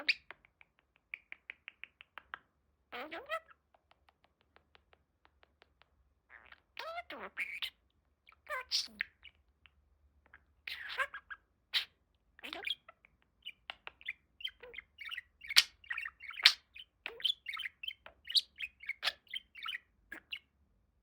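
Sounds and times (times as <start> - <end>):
budgerigar chirping and warbling: 0.0 - 0.3, 2.9 - 3.6, 6.3 - 9.4, 10.3 - 20.5.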